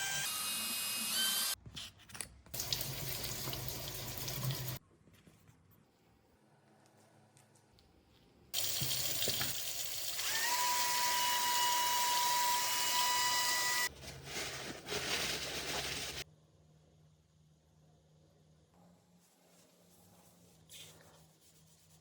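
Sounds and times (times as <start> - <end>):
water rushing from a tap: 2.6 - 4.8, 8.6 - 10.9.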